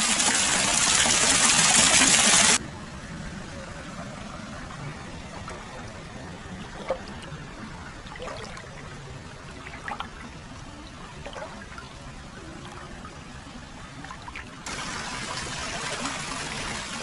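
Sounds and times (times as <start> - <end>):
water pouring and trickling: 0.0 - 2.6, 5.0 - 17.0
small water splashes: 5.1 - 13.3, 13.9 - 17.0.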